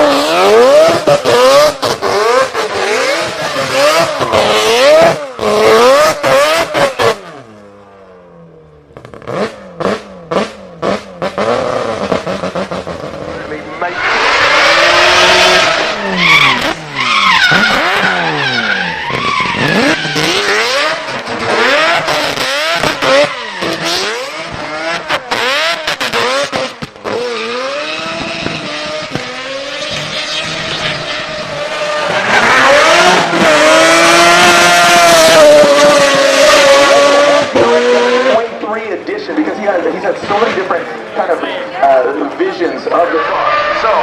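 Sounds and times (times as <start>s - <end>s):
car engine revving hard: 0.0s - 7.8s, 8.9s - 38.6s
tyre squeal: 13.7s - 33.5s, 42.9s - 44.0s.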